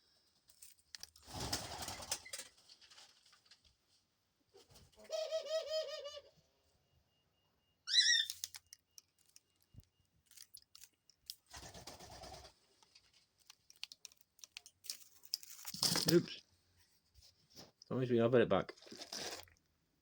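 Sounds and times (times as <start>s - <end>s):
dove cooing: 5.0s - 6.3s.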